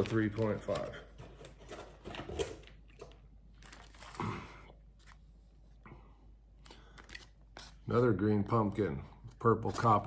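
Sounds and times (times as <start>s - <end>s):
plastic packaging crinkling: 1.6s - 4.4s.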